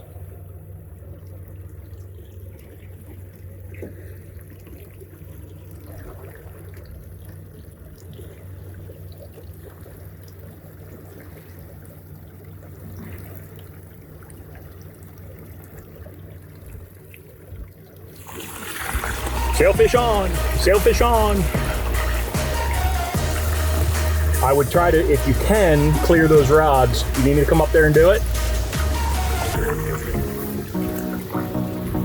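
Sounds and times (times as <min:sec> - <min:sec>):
water trickling and splashing: 0:00.0 - 0:32.0
outboard motor humming: 0:18.0 - 0:32.0.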